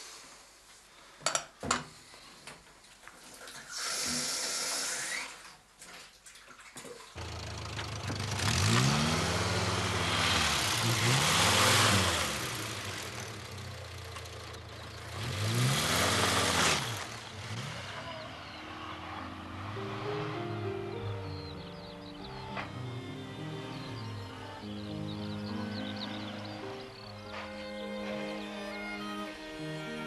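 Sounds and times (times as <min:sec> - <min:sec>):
vehicle engine starting and revving: 0:07.2 - 0:29.2.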